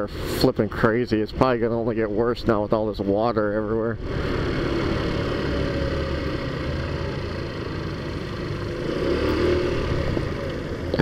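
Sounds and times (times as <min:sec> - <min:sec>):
wind and road noise: 0:00.0 - 0:11.0
scooter engine running: 0:04.0 - 0:11.0.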